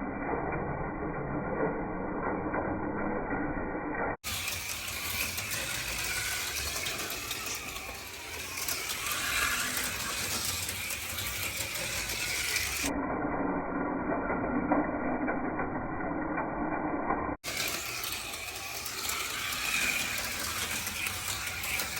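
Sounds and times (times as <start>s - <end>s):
electric motors whirring: 4.2s - 12.9s, 17.4s - 21.9s
slot cars rattling on track: 4.2s - 12.9s, 17.4s - 21.9s.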